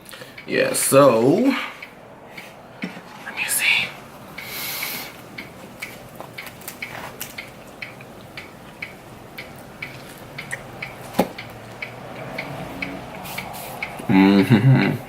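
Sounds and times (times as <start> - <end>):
chewing with wet mouth clicks: 5.4 - 13.9.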